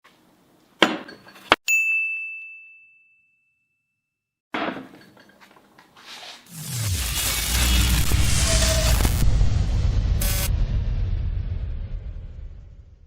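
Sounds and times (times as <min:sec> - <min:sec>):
bright metallic ding: 0:01.7 - 0:03.7
short noisy hit: 0:06.6 - 0:13.0.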